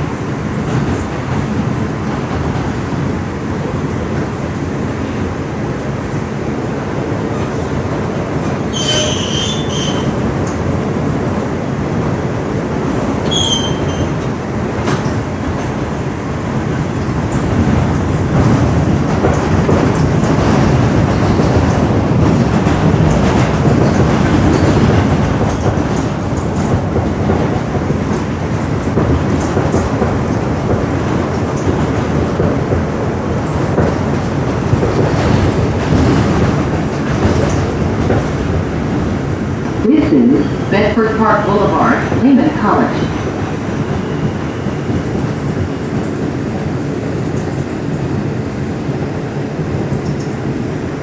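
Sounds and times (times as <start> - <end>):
subway wheels rumbling on rails: 0.0 - 51.0
wheel squeal: 8.7 - 10.2, 13.2 - 14.3.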